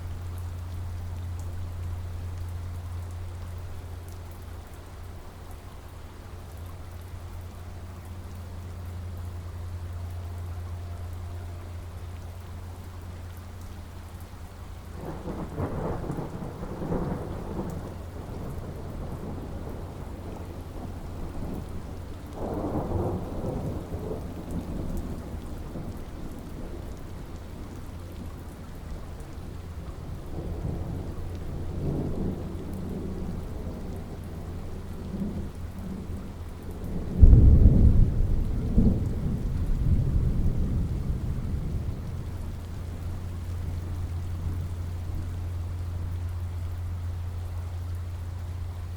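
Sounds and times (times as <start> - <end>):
steady rain falling: 0.0 - 48.9
thunder rumbling: 15.0 - 46.9.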